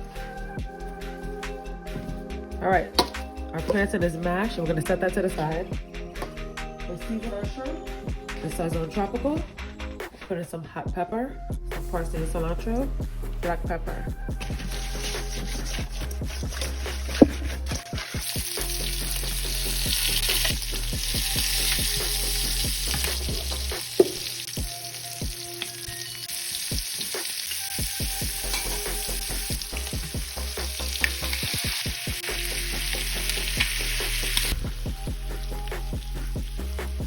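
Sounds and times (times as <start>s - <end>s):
shrimp sizzling in a pan: 14.4s - 37.0s.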